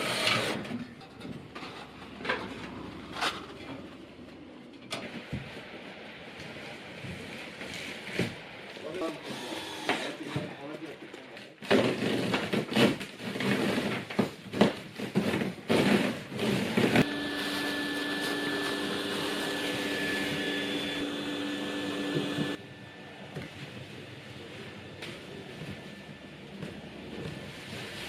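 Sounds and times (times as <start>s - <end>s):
power tool motor whine: 9.2s - 10.2s, 16.9s - 22.6s.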